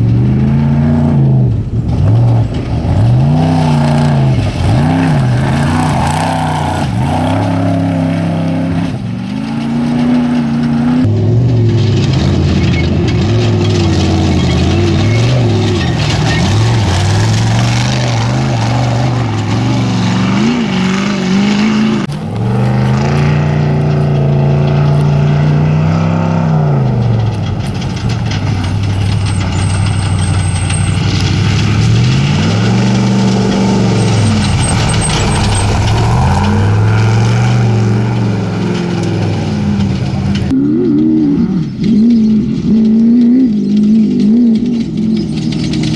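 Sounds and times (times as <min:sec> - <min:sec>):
race truck engines revving: 0:00.0 - 0:45.9.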